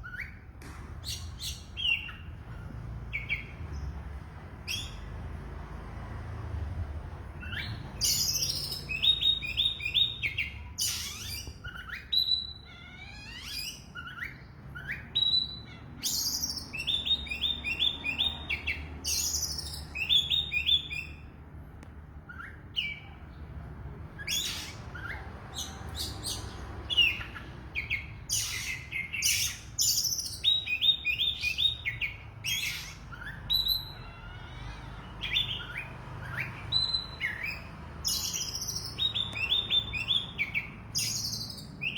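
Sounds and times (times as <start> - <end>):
songbird whistling: 7.4 - 21.3, 24.2 - 41.9.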